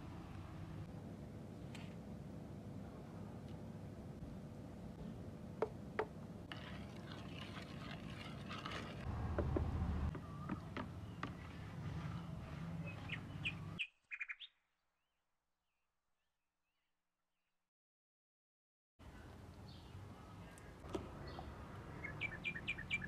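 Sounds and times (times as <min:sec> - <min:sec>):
birds chirping: 0:12.4 - 0:14.6, 0:19.2 - 0:23.0.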